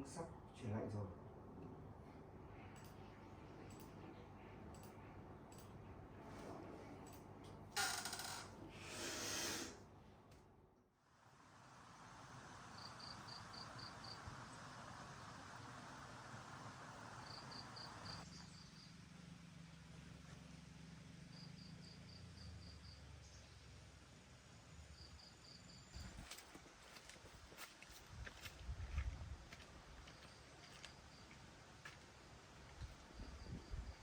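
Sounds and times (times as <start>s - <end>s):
insect chirping: 12.4s - 18.9s, 24.6s - 26.4s, 32.8s - 34.0s.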